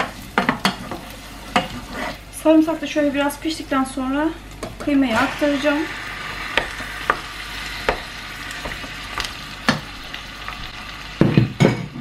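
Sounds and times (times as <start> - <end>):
meat sizzling in a pan: 5.2 - 12.0.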